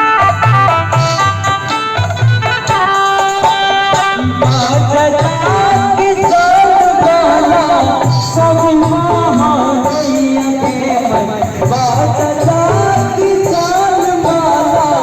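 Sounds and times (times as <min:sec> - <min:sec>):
folk melody: 0:00.0 - 0:15.0
pulsing drum beat: 0:00.0 - 0:15.0
person singing: 0:03.1 - 0:15.0.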